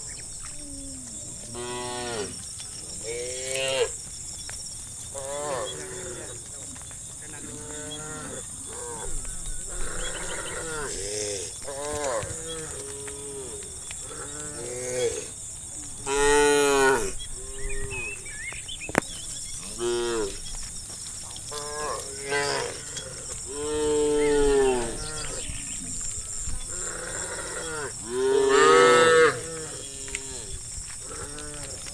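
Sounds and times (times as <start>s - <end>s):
cattle mooing: 21.6s - 31.9s.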